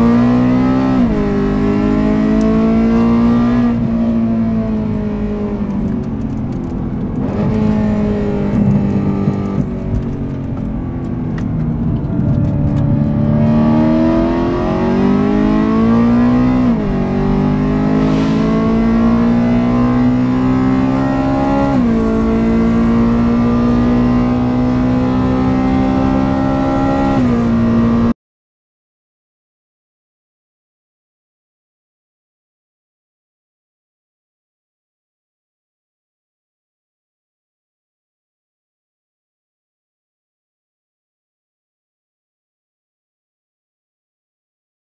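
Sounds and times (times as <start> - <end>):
car engine revving with crackles: 0.0 - 28.1.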